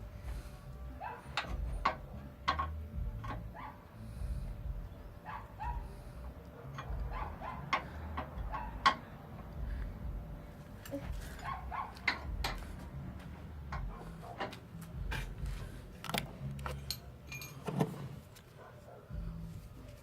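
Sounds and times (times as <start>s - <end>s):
tools and parts clicking: 1.3s - 3.5s, 6.7s - 7.1s, 16.0s - 18.5s
low rumble: 9.4s - 11.5s.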